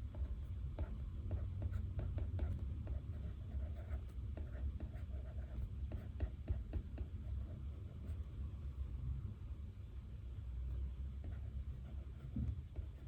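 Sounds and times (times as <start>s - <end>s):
low room hum: 0.0s - 13.0s
pen scratching on paper: 0.1s - 8.2s, 11.2s - 13.0s.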